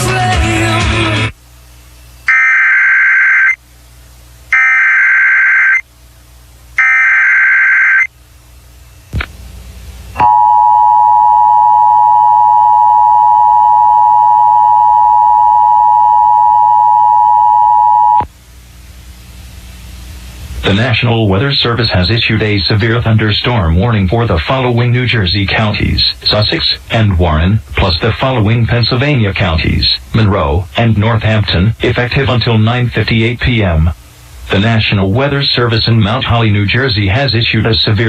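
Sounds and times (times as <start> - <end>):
buzzing data bursts: 2.3 - 3.6, 4.5 - 5.8, 6.8 - 8.1
two-tone attention signal: 10.2 - 18.2.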